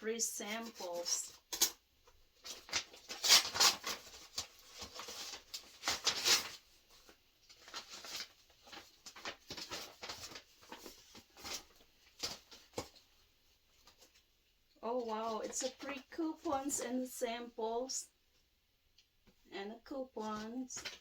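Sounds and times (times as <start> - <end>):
paper and plastic packets crinkling: 2.4 - 17.0, 20.2 - 21.0.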